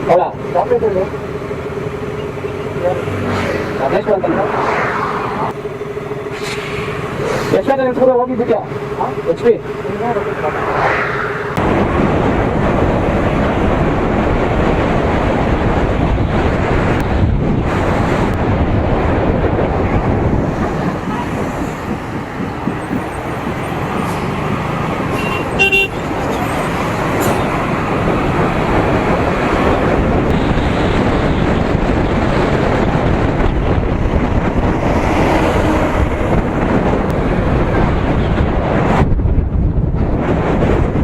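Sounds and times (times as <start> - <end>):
wind and road noise: 0.0 - 41.0
vehicle horn toot: 25.1 - 26.0.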